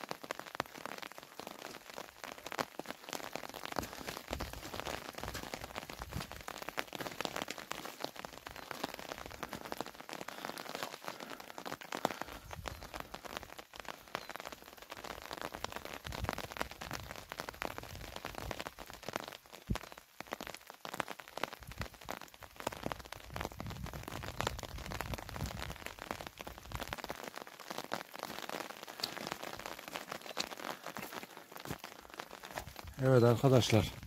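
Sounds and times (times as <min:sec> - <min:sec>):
rain drops tapping: 0:00.0 - 0:34.0.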